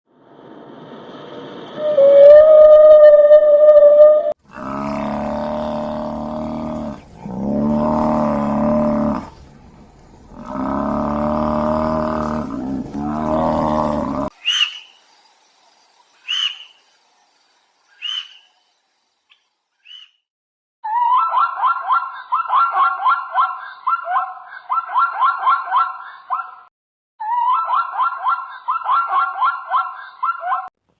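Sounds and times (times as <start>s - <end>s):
low buzzy animal calls: 1.8s - 14.9s, 18.0s - 18.5s
yelping calls: 4.5s - 14.9s, 16.3s - 16.7s, 18.0s - 18.5s, 20.8s - 26.6s.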